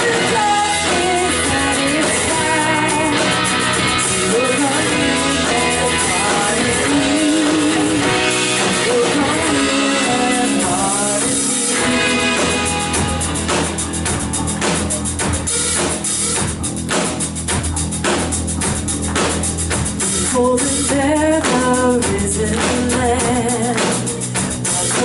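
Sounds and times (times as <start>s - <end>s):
guitar wavering melody: 0.0s - 16.9s
drum kit strokes: 0.0s - 25.0s.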